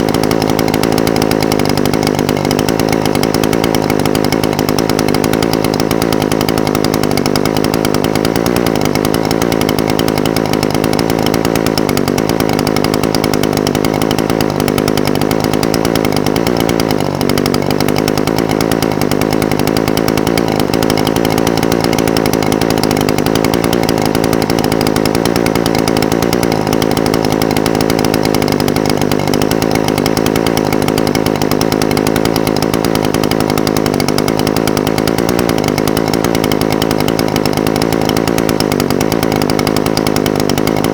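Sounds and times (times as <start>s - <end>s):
brush cutter engine idling: 0.0s - 40.9s.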